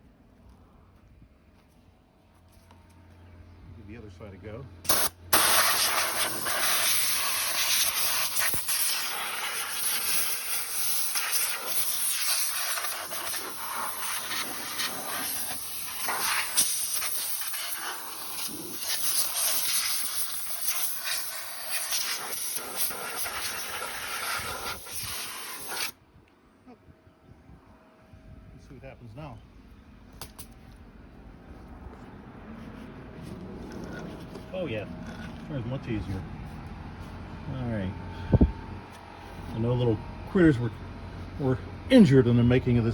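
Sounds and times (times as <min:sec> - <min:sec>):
compressed air blasts from blow gun: 0:04.9 - 0:26.0.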